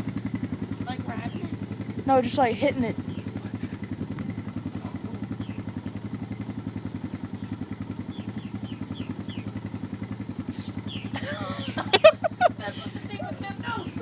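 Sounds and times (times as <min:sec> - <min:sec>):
engine idling: 0:00.0 - 0:14.0
high falling bird chirps: 0:07.3 - 0:09.7, 0:10.5 - 0:11.9.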